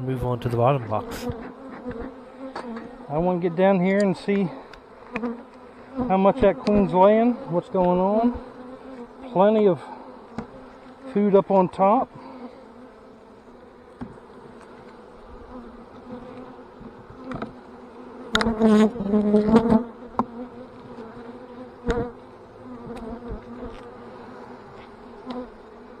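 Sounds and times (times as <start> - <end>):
honeybees buzzing: 0.0 - 26.0.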